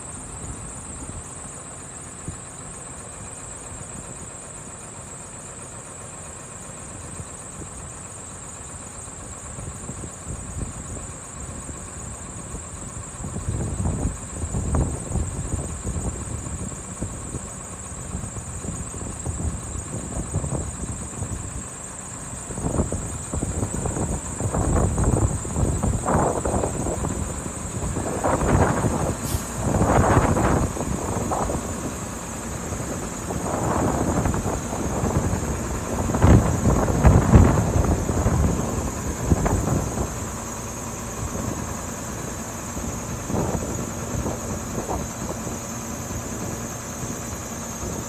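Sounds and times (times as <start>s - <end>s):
diesel truck engine idling: 0.0s - 48.0s
uneven low rumbling: 22.5s - 48.0s.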